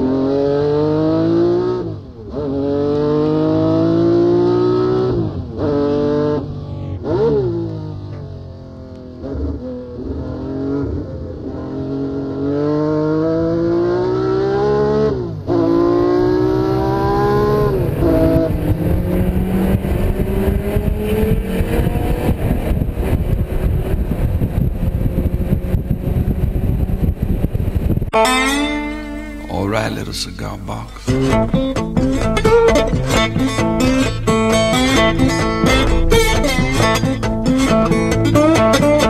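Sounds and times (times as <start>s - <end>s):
car engine accelerating hard: 0.0s - 28.0s, 31.0s - 39.0s
wind noise: 15.2s - 28.4s.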